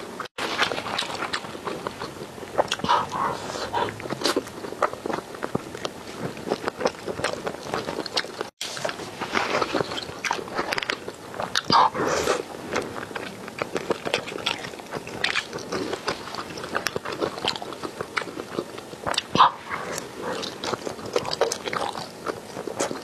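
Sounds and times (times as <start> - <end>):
food crunching being chewed: 0.1 - 23.0.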